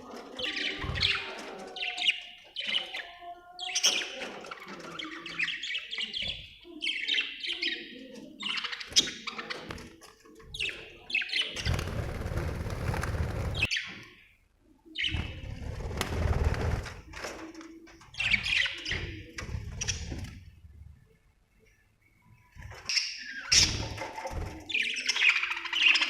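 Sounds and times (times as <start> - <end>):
budgerigars chirping and chattering: 0.1 - 14.1, 15.0 - 15.5, 18.1 - 20.3, 22.7 - 26.0.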